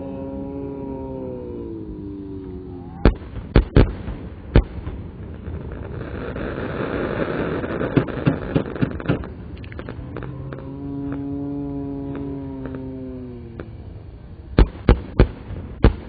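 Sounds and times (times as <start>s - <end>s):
fireworks crackling: 3.0s - 16.0s
fireworks shells bursting: 7.3s - 11.2s.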